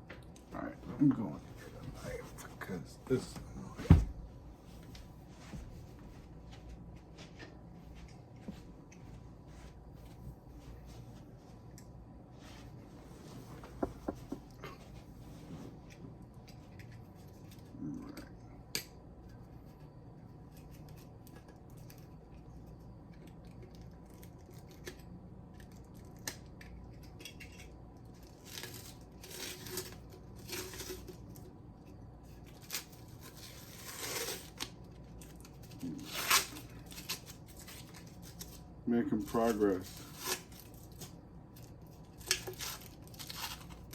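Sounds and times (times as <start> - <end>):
knife scraping wrapping: 32.5 - 34.7, 35.7 - 38.6, 39.8 - 41.1, 42.2 - 43.9
wrapping tearing: 32.5 - 38.6, 39.8 - 43.9.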